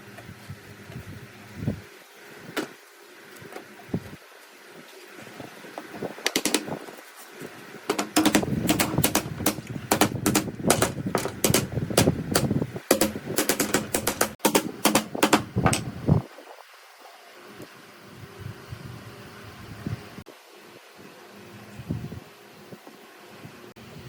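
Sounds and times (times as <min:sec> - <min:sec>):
rapid sharp knocks: 0:06.3 - 0:06.7, 0:07.9 - 0:15.9.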